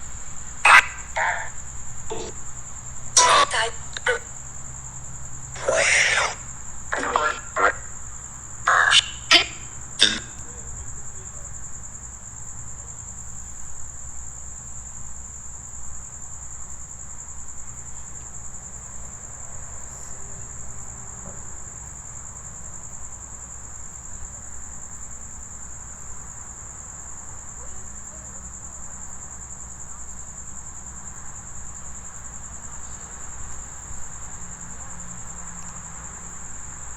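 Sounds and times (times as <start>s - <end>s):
crickets chirping: 0.0s - 36.9s
short sharp noises: 0.7s - 2.4s, 3.2s - 4.3s, 5.6s - 8.0s, 8.7s - 10.5s.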